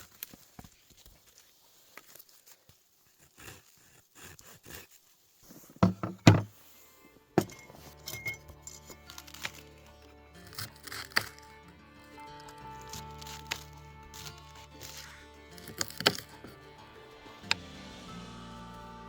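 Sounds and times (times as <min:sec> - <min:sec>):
soft rustles: 0:00.0 - 0:03.2
heavy thumps: 0:05.8 - 0:06.6
background music: 0:05.9 - 0:19.0.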